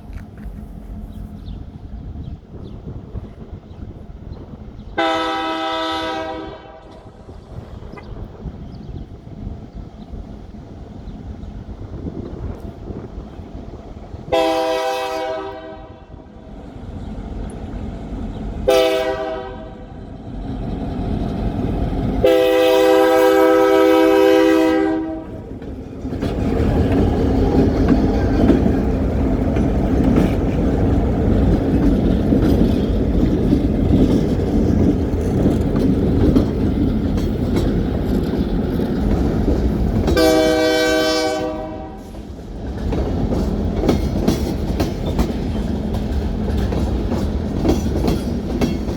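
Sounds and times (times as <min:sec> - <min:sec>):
train rumbling past: 0:00.0 - 0:48.9
diesel locomotive horn blasts: 0:05.0 - 0:07.0, 0:14.3 - 0:16.3, 0:18.6 - 0:20.0, 0:22.2 - 0:25.4, 0:40.1 - 0:42.3
train wheel clacks: 0:20.4 - 0:41.2, 0:42.0 - 0:48.9.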